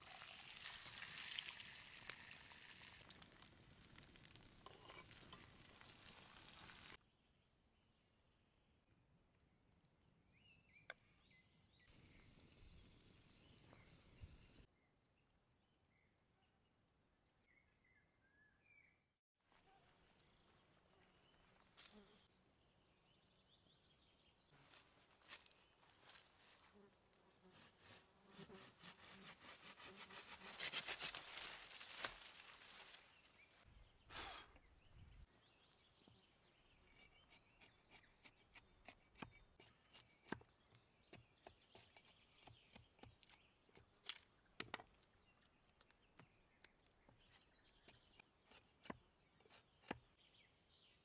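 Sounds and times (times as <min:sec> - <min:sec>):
food sizzling in a pan: 0:00.0 - 0:03.5, 0:04.4 - 0:07.0
faint forest ambience: 0:01.4 - 0:51.0
faint bird chirps: 0:17.4 - 0:21.5.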